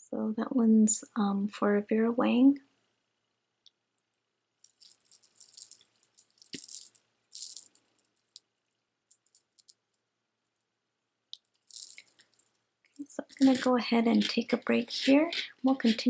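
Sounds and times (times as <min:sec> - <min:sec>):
jewelry and beads clicking: 0:04.0 - 0:10.0, 0:11.3 - 0:16.0.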